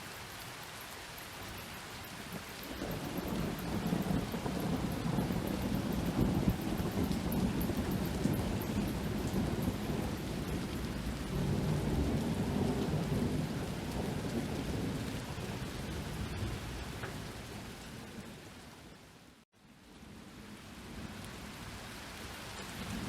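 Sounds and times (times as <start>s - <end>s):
steady rain: 0.0s - 23.0s
rolling thunder rumble: 2.6s - 18.4s.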